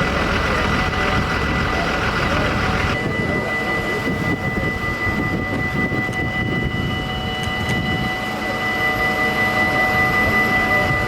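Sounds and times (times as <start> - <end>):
low engine rumble: 0.0 - 6.8
high whining tones: 0.0 - 11.0.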